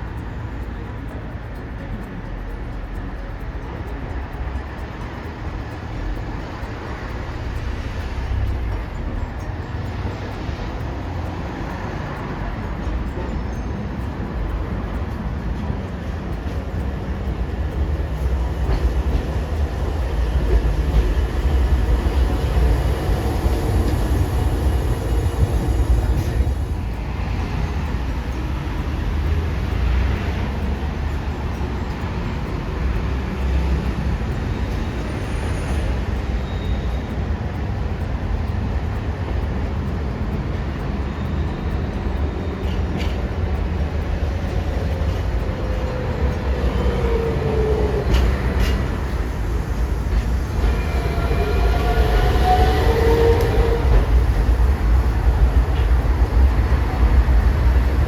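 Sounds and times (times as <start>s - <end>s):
streetcar rumbling on track: 0.0s - 58.0s
falling whine: 41.1s - 58.0s.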